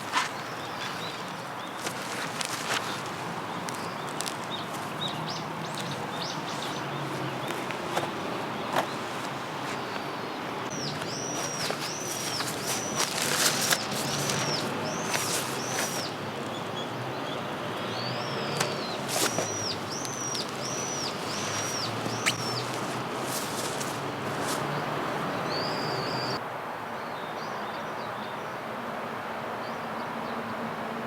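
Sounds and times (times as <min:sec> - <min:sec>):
songbird calling high notes: 0:10.7 - 0:16.2, 0:16.8 - 0:23.8, 0:24.7 - 0:26.4.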